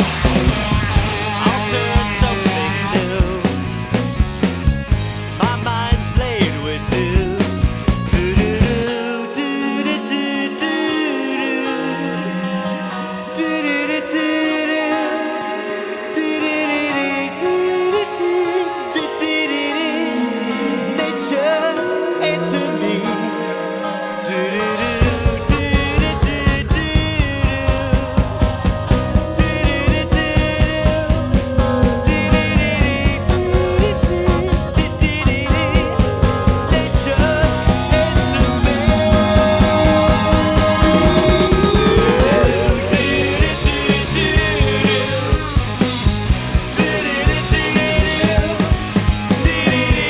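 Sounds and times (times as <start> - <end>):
bass: 0.0 - 9.0, 24.7 - 50.0
drums beat: 0.0 - 9.0, 24.7 - 50.0
psychedelic rock band playing: 0.0 - 50.0
wavering melodic lead: 0.0 - 50.0.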